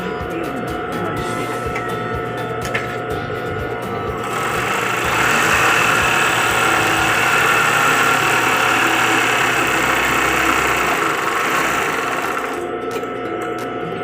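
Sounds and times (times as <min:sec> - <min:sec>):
sewing machine running: 0:04.2 - 0:12.7.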